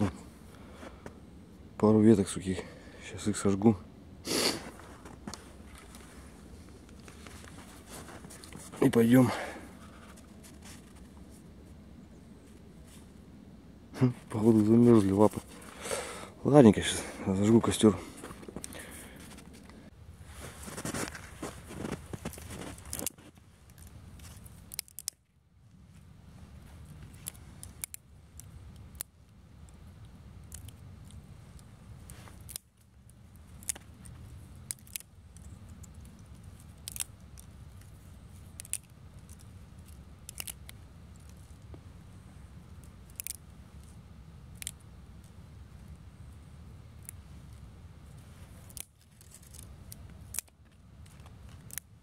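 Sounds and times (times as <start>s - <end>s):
low steady rumble: 0.0s - 52.0s
dry twigs snapping: 20.8s - 25.3s, 26.6s - 41.8s, 42.6s - 46.0s, 46.9s - 52.0s.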